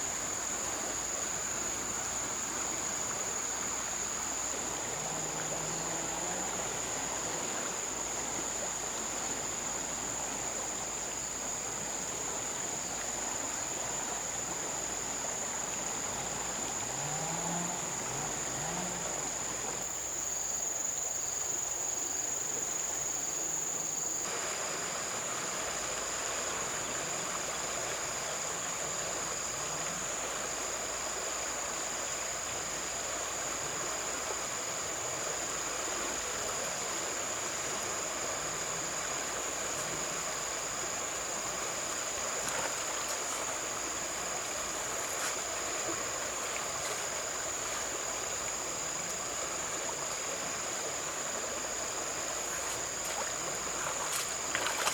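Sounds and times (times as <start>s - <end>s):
river water flowing: 0.0s - 54.9s.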